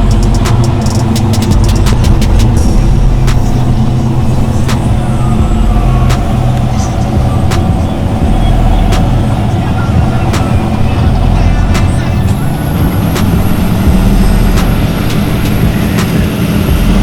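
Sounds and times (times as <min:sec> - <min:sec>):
sharp clicks: 0:00.0 - 0:02.6
truck engine deep rumble: 0:00.0 - 0:17.0.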